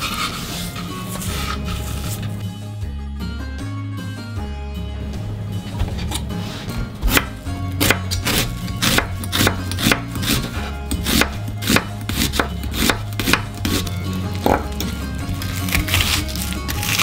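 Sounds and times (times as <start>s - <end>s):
knife slicing onion on cutting board: 6.5s - 17.0s.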